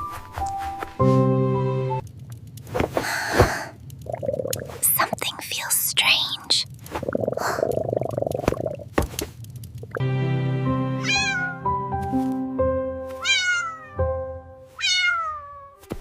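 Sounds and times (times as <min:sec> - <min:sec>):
kitten meowing: 0:11.0 - 0:11.6, 0:13.2 - 0:14.0, 0:14.8 - 0:15.8.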